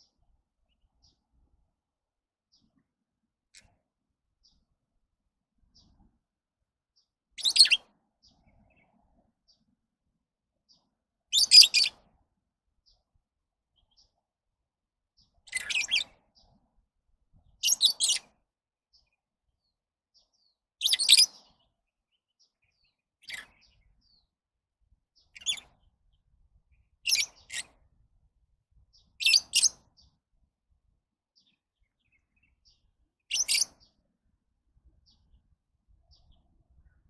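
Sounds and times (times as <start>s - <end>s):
lovebirds chirping: 7.4s - 8.8s, 11.3s - 12.0s, 15.3s - 16.5s, 17.6s - 18.4s, 20.2s - 24.3s, 25.2s - 27.7s, 28.9s - 30.2s, 31.4s - 34.0s.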